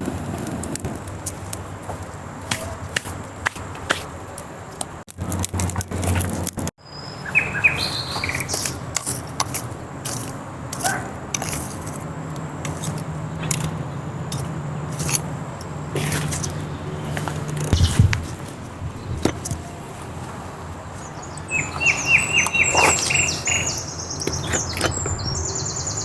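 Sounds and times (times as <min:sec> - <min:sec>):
bird chirps: 0:06.8 - 0:08.9, 0:21.0 - 0:26.0.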